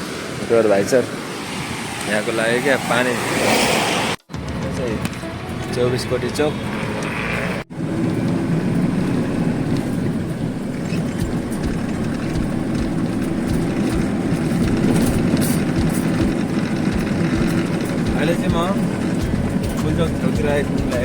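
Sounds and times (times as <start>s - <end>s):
road noise: 0.0s - 21.0s
truck engine running: 4.2s - 21.0s.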